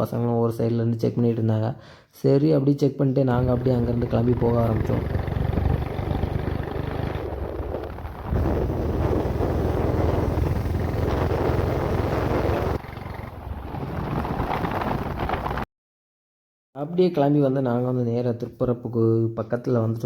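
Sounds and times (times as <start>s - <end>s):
motorcycle running: 3.4s - 15.6s
wind rushing over microphone: 3.4s - 15.6s.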